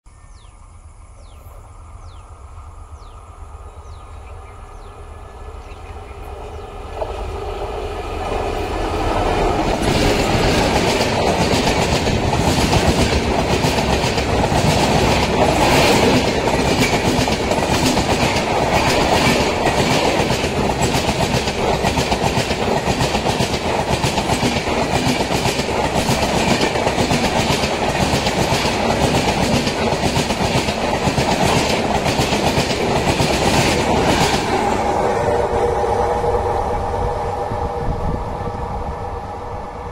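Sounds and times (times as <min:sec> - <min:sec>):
train wheels rushing on rail: 0:01.2 - 0:39.9
wheels clickety-clack over rail joints: 0:06.2 - 0:35.0.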